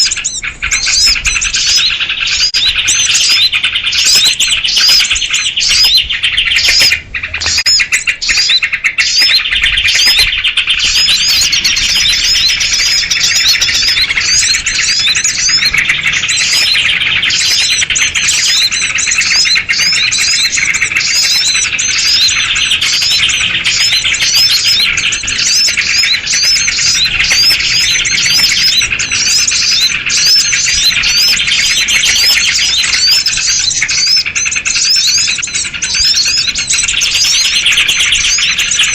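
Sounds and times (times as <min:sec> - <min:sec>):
flock of birds chirping: 0:00.0 - 0:38.9.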